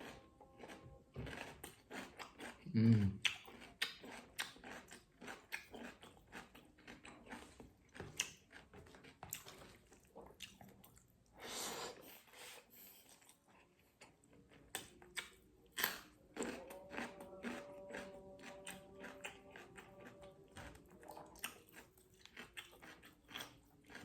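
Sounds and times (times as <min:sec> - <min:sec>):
chewing and biting food: 0:00.0 - 0:11.3, 0:12.2 - 0:24.0.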